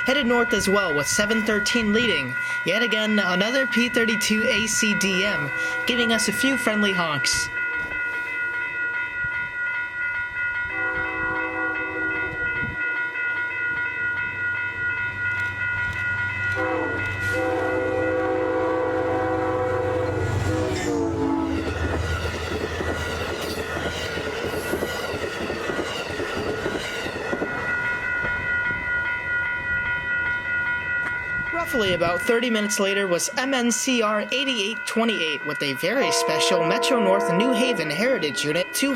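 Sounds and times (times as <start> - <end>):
locomotive horn: 10.7 - 12.3, 16.5 - 22.1, 36.0 - 38.2
train wheels clattering on rails: 21.5 - 28.9.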